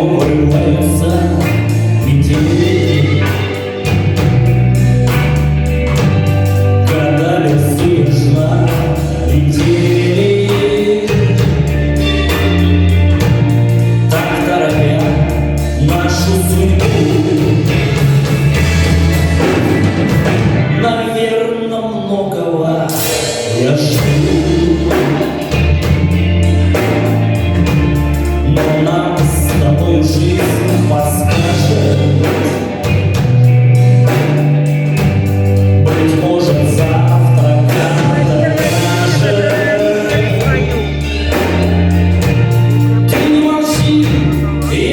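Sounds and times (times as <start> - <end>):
singing-like voices: 0.0 - 18.7, 19.4 - 27.5, 28.2 - 33.2, 35.7 - 44.9
bass line: 0.0 - 21.3, 23.0 - 44.9
drum hits: 30.4 - 44.1.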